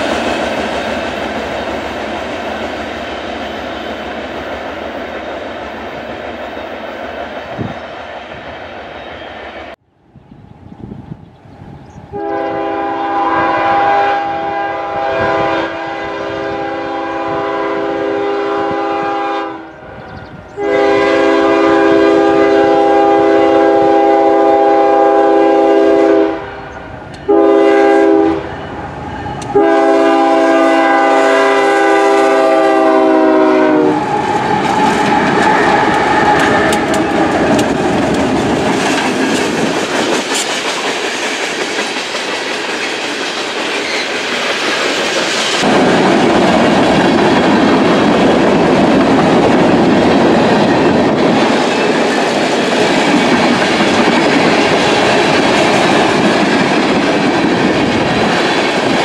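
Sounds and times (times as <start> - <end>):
train wheels clattering on rails: 0.0 - 9.7, 34.0 - 59.0
locomotive air horn blasts: 12.1 - 20.0, 20.6 - 36.9.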